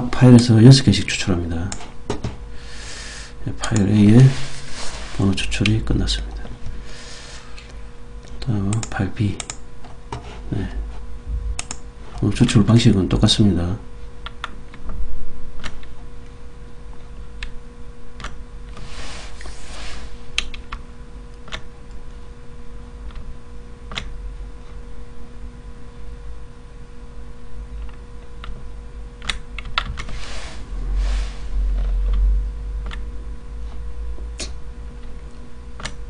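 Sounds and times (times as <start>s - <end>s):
steady electrical hum: 0.0s - 36.0s
soft rustling hisses: 4.1s - 5.4s, 18.8s - 20.3s, 30.1s - 31.5s
computer keys clicking: 8.7s - 9.6s, 11.6s - 11.8s.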